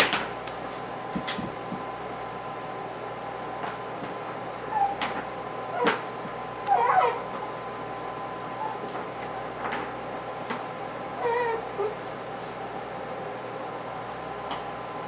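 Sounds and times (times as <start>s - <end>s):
puppy yelping: 4.6s - 6.0s, 6.6s - 7.4s, 8.6s - 8.9s, 11.2s - 12.0s.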